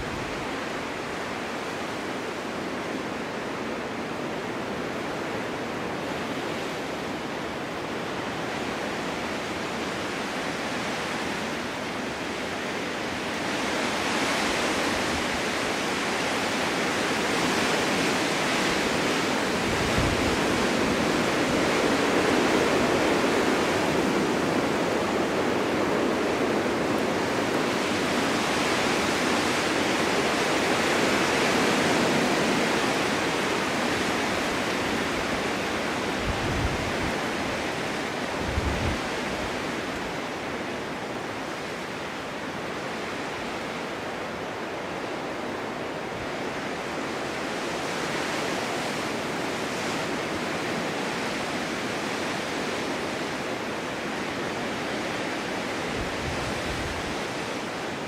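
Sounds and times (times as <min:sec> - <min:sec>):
strong gusty wind: 0:00.0 - 0:58.0.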